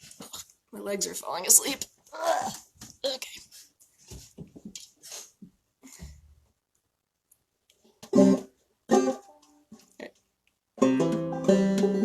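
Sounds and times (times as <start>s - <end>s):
banjo strummed chords: 8.0s - 9.5s, 10.8s - 12.0s
banjo plucked notes: 8.0s - 9.6s, 10.8s - 12.0s
clawhammer banjo playing: 8.0s - 9.6s, 10.8s - 12.0s.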